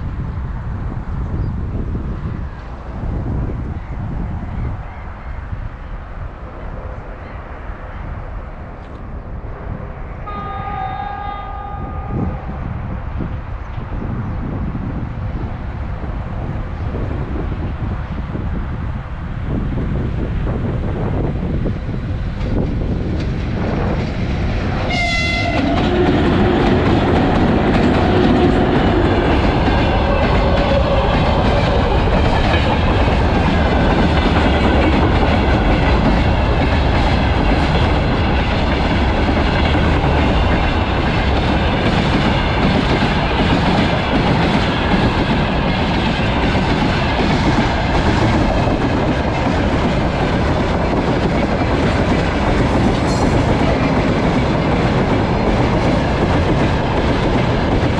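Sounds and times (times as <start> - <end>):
freight train rumble and rail clatter: 0.0 - 57.9
train horn blast: 10.2 - 13.3, 24.8 - 31.6.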